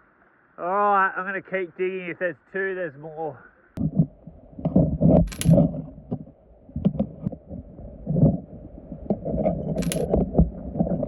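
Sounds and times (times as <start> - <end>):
stones knocking underwater: 3.8 - 11.0
sharp clicks: 5.2 - 5.6, 9.8 - 10.2.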